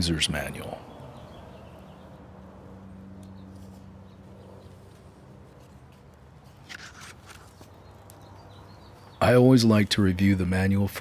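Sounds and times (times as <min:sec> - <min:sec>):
paper booklet crackling: 0:03.4 - 0:08.3.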